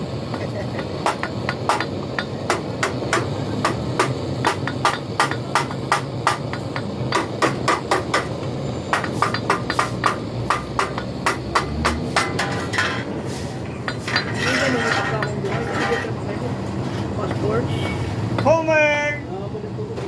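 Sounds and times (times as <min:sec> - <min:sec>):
hammer tapping on metal: 0:00.8 - 0:13.1.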